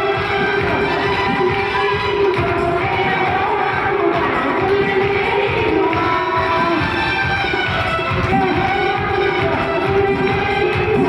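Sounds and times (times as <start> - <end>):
church worship music: 0.0 - 11.0
congregation voices: 0.0 - 11.0.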